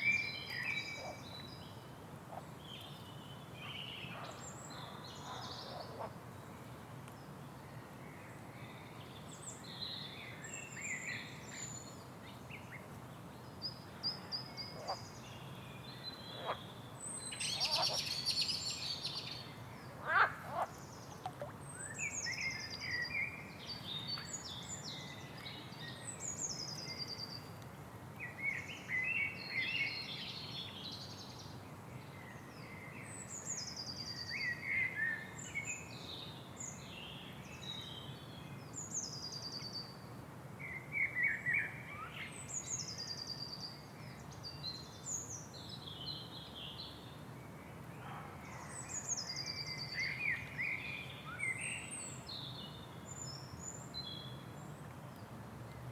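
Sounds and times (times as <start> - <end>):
faint background noise: 0.0 - 55.9
songbirds singing and chirping: 40.6 - 55.9.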